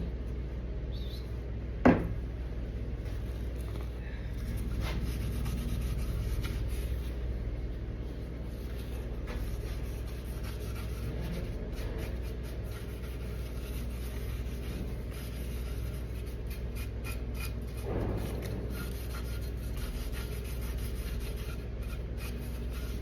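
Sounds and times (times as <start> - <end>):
low hum: 0.0 - 16.6
light rubbing and scratching: 3.6 - 7.3, 8.0 - 23.0.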